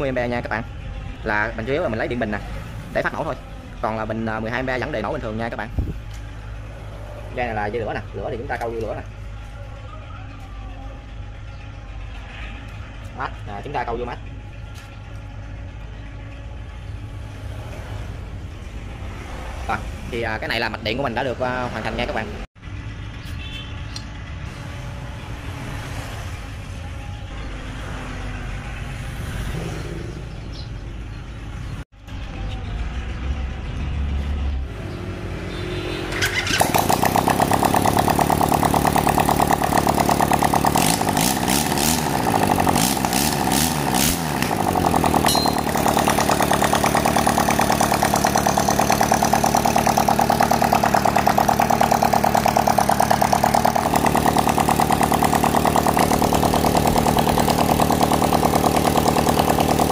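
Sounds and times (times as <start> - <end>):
engine running loudly: 34.8 - 59.9
electric starter cranking engine: 36.1 - 59.9.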